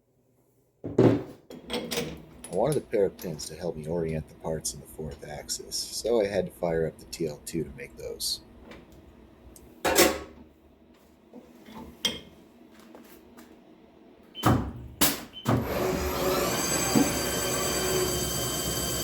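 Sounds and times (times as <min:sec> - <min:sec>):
handling knocks and clunks: 0:00.8 - 0:02.8
lathe spindle whine: 0:15.6 - 0:19.0.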